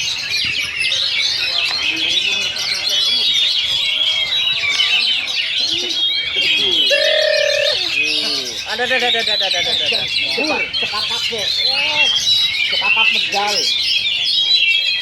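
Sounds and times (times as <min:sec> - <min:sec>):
birds singing: 0:00.0 - 0:15.0
held bird note: 0:06.7 - 0:08.6.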